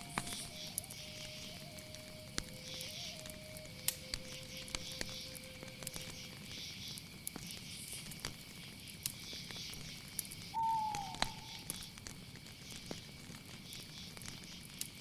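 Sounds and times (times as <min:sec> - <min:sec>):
whistled call sliding down: 0:00.0 - 0:05.4, 0:10.5 - 0:11.8
insects chorus: 0:00.0 - 0:15.0
sharp clicks and crackles: 0:00.0 - 0:15.0.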